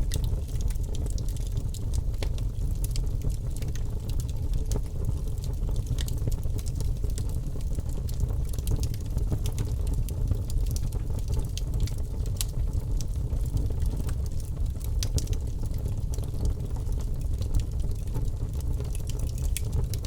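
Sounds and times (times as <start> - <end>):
logs burning in a fireplace: 0.0 - 20.0.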